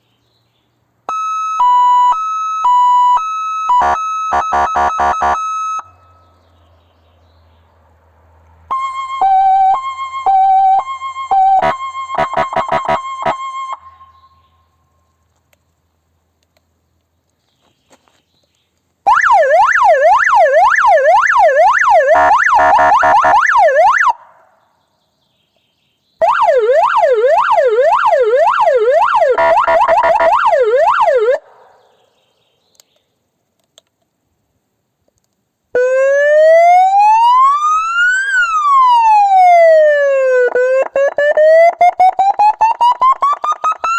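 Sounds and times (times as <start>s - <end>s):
siren fast yelp: 1.1s - 6.0s, 8.7s - 14.2s, 19.1s - 24.3s, 26.2s - 31.6s, 35.8s - 43.9s
siren slow wail: 1.1s - 6.2s, 8.7s - 14.5s, 19.1s - 24.4s, 26.2s - 31.7s, 35.8s - 43.9s.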